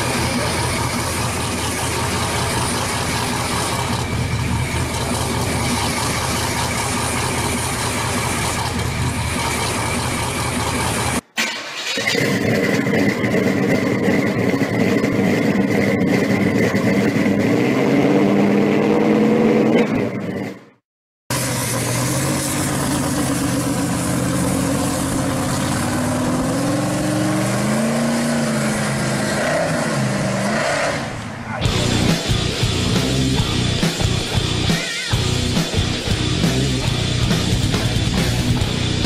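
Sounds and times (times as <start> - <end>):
supercharged car engine revving: 12.0 - 39.0.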